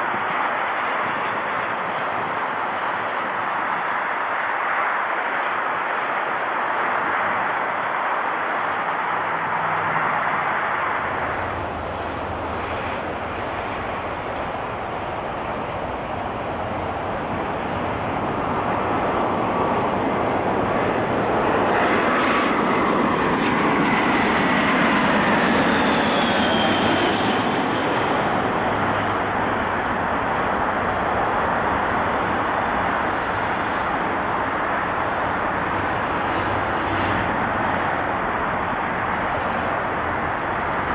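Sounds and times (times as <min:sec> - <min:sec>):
jet airliner passing: 0:06.0 - 0:40.9.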